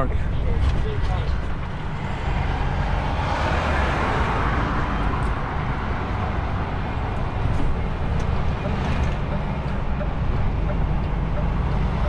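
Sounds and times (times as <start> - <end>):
truck engine drone: 0.0 - 12.0
tyre and road noise: 0.0 - 12.0.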